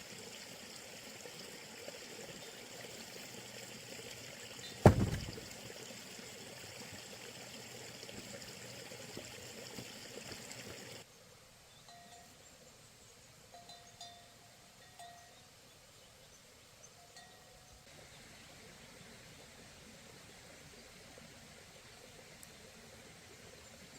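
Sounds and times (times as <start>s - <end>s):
heavy thump with ring-out: 4.8s - 5.5s.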